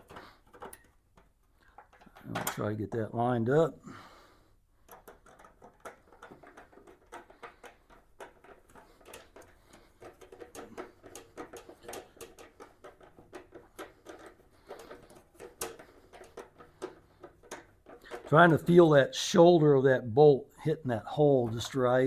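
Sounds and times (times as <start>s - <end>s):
small metal clicks and taps: 0.0s - 3.2s, 4.8s - 18.9s.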